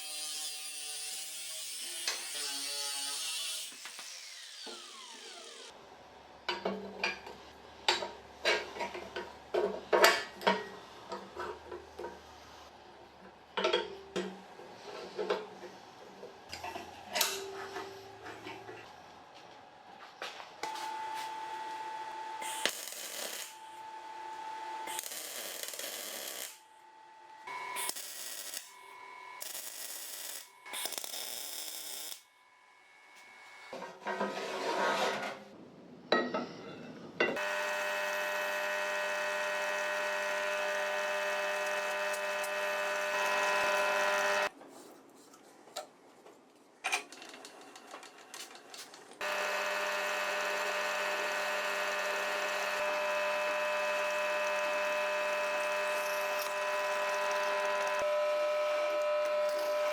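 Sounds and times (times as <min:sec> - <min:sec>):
power tool working noise: 0:00.0 - 0:05.8, 0:22.4 - 0:23.6, 0:37.4 - 0:44.5, 0:49.2 - 0:59.9
electric power tool motor humming: 0:02.0 - 0:05.8, 0:37.4 - 0:44.5, 0:49.2 - 0:59.9.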